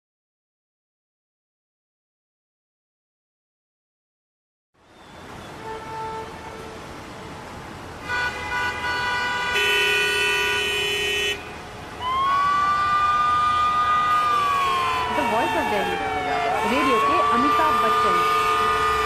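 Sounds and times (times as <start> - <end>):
car horns honking: 5.3 - 7.0, 8.0 - 11.8, 14.1 - 19.0
siren: 12.0 - 19.0.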